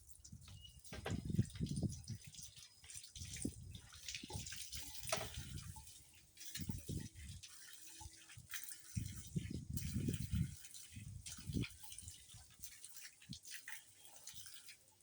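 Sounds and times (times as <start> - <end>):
tap water splashing in sink: 0.2 - 14.8
dull knocks and thumps: 0.9 - 1.6.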